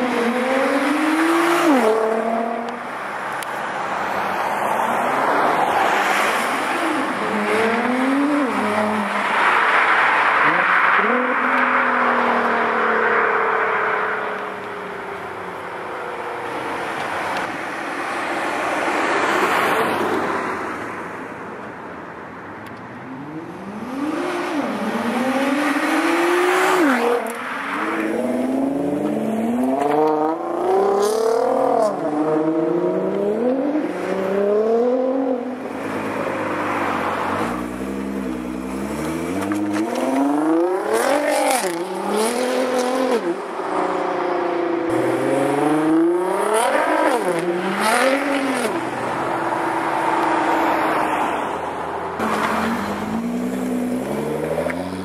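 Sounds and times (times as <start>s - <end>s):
sports car engines accelerating: 0.0s - 3.5s, 22.6s - 55.0s.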